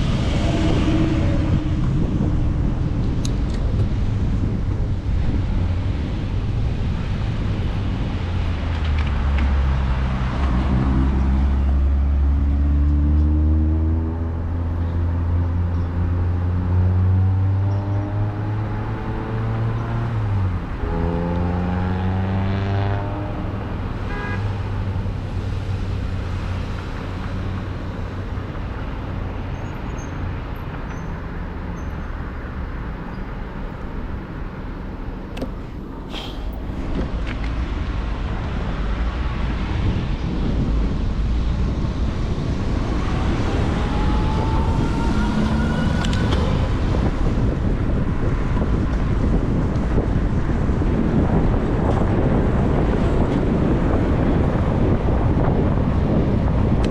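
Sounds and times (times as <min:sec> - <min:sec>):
wind on microphone: 0:00.0 - 0:12.3, 0:35.3 - 0:56.9
road traffic: 0:00.0 - 0:56.9.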